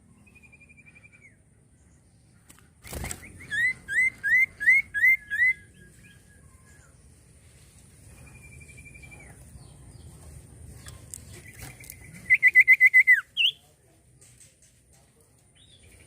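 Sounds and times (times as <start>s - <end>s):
bird whistling song: 0.2s - 1.4s, 3.2s - 7.0s, 8.3s - 9.4s, 11.4s - 13.6s.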